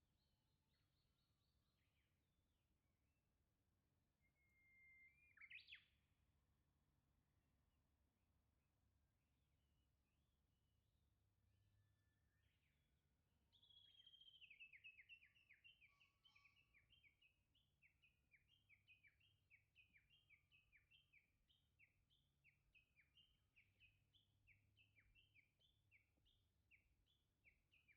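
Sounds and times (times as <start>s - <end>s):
songbird singing: 0.0s - 2.4s, 4.2s - 6.0s, 11.7s - 27.9s.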